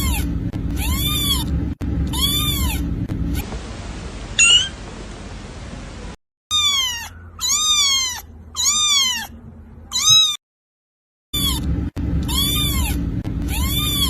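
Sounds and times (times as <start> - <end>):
kitten meowing: 0.0 - 1.5, 2.1 - 2.8, 4.4 - 4.8, 6.5 - 10.4, 11.4 - 14.0.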